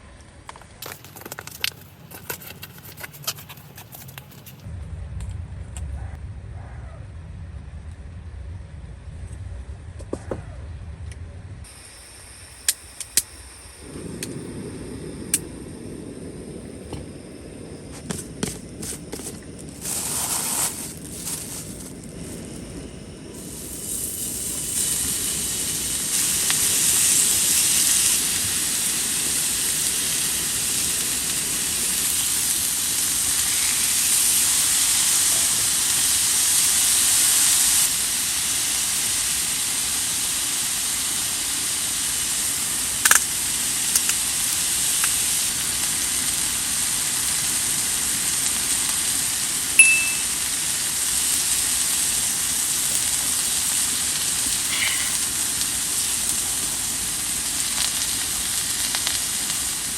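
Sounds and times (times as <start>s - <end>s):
food sizzling on stove: 11.6s - 59.9s
high beep: 49.8s - 50.3s.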